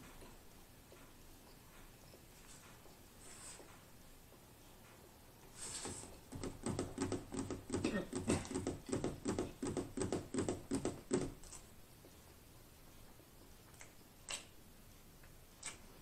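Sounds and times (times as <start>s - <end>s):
person chewing food: 13.5s - 14.6s, 15.2s - 16.0s.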